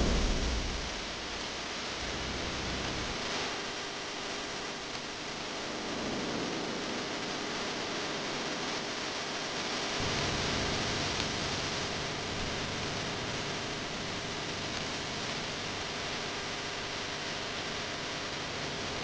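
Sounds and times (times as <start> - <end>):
low rumble: 0.0 - 3.8
heavy rain hiss: 0.0 - 19.0.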